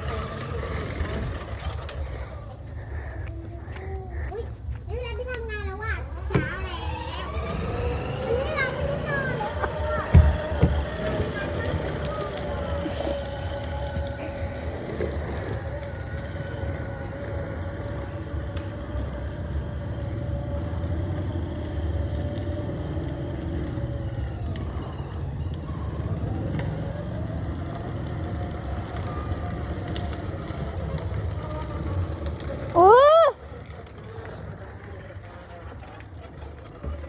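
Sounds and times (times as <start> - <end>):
rumble of wheels and wind: 0.0 - 37.0
electric motor whining: 6.3 - 32.8.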